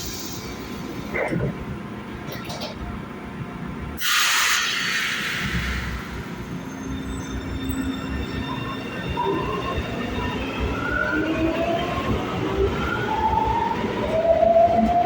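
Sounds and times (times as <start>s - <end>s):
train rumble: 0.0s - 15.0s
air hiss: 4.0s - 6.3s
train wheels whining and squealing: 4.0s - 15.0s.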